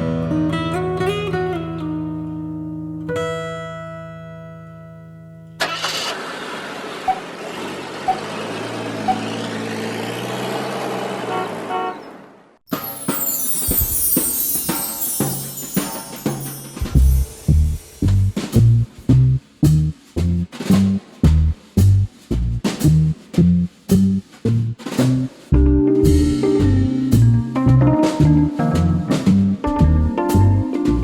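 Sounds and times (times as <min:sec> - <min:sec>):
car engine running: 0:05.7 - 0:11.4
plucked-string music: 0:25.6 - 0:31.0.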